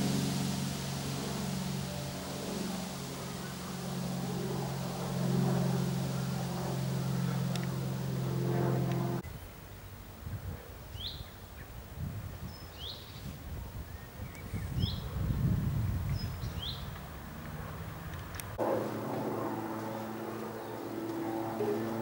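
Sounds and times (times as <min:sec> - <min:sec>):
low hum with hiss: 0:00.0 - 0:14.8.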